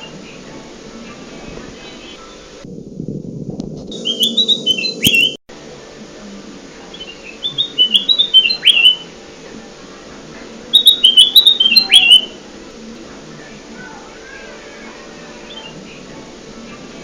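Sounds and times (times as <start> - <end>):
low steady hum: 0.0 - 17.0
bird whistling song: 3.9 - 5.4, 6.9 - 9.1, 10.7 - 12.4.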